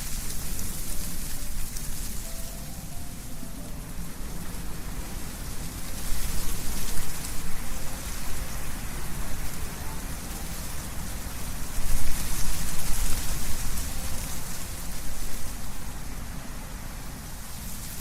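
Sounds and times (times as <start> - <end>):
wind rustling leaves: 0.0 - 18.0.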